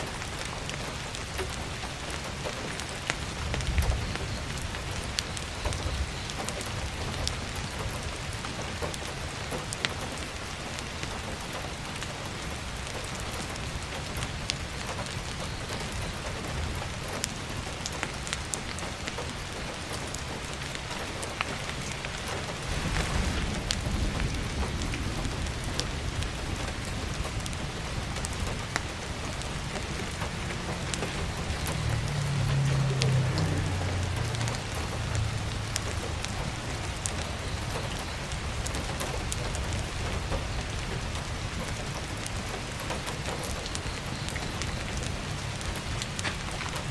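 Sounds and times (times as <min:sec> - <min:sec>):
heavy rain on a roof: 0:00.0 - 0:46.9
thunder rumbles: 0:00.0 - 0:46.9
wood fire crackles: 0:00.0 - 0:46.9.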